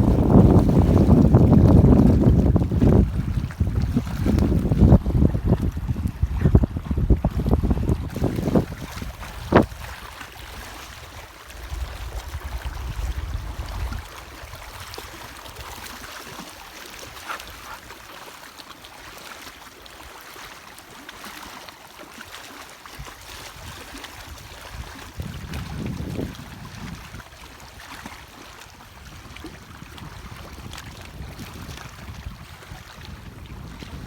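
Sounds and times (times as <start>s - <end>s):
wind buffeting microphone: 0.0s - 15.8s, 23.0s - 34.0s
lake water lapping: 0.0s - 34.0s.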